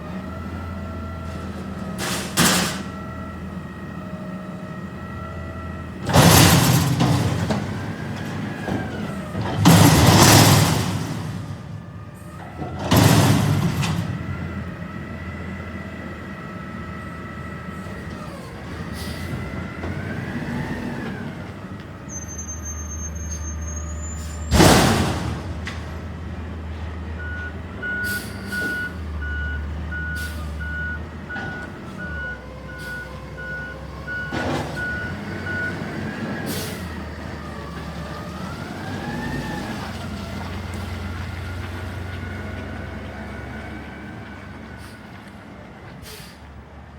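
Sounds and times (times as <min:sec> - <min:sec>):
garbage truck engine revving: 0:00.0 - 0:22.1, 0:23.0 - 0:45.1
reversing alarm beeping: 0:27.2 - 0:35.8.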